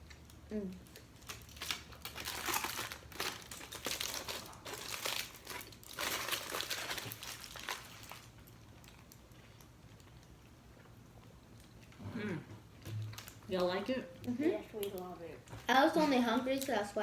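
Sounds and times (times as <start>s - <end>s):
food packaging crinkling: 0.0s - 10.2s, 13.0s - 13.6s.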